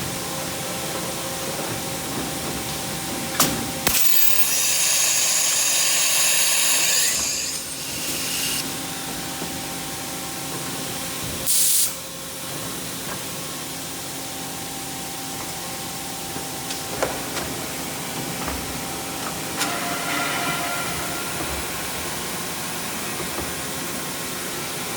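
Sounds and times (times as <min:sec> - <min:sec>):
hiss of spray: 0:11.5 - 0:12.0
machine humming: 0:15.8 - 0:24.9.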